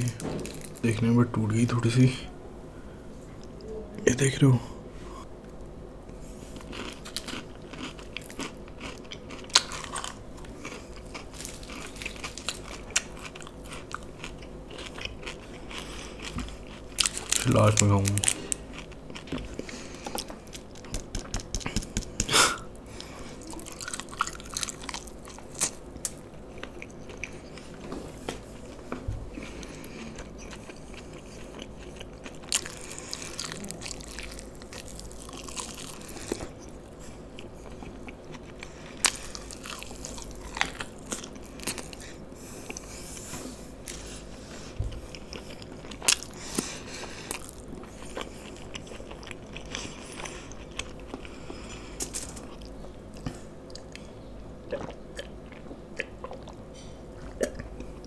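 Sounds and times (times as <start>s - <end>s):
biting and chewing fried chicken: 6.4s - 58.0s
sharp crunchy snaps: 19.1s - 22.6s.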